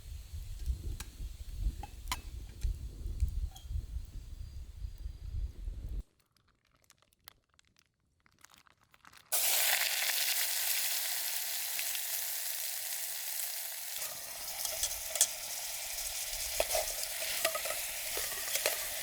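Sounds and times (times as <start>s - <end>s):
food sizzling in hot pan: 9.3s - 19.0s.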